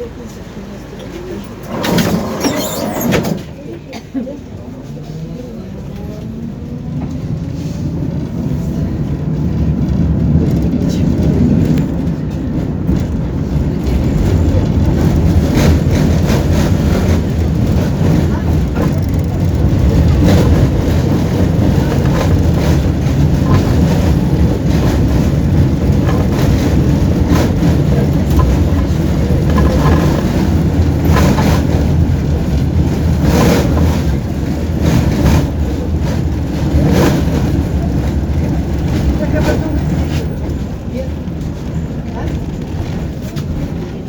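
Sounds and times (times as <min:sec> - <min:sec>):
tram wheels and motors rumbling: 0:00.0 - 0:44.0
wheels knocking over rail joints: 0:09.7 - 0:44.0.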